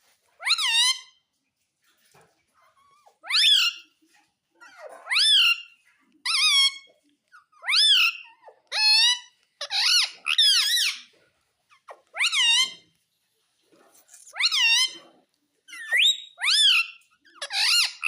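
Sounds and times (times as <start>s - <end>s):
parrot high calls: 0.4s - 1.2s, 3.2s - 3.9s, 4.6s - 11.1s, 11.8s - 12.9s, 14.3s - 15.1s, 15.7s - 18.0s.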